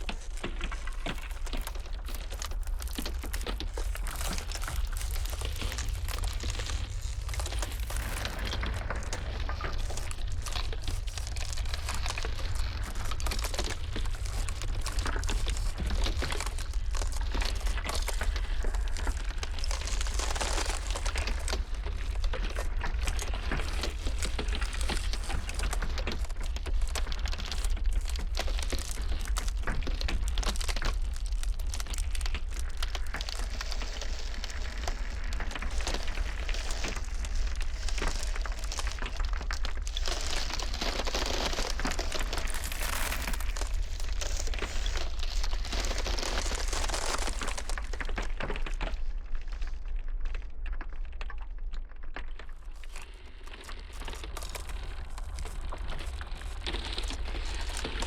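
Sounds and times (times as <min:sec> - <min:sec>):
low wind rumble: 0:00.0 - 0:28.0
ice crackling and cracking: 0:00.0 - 0:58.0.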